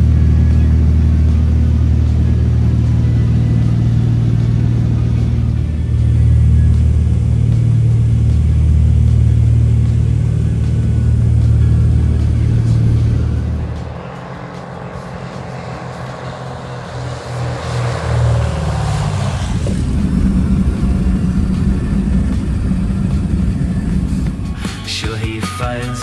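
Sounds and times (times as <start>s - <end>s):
falling whine: 0.0s - 25.3s
vehicle engine running: 0.0s - 26.0s.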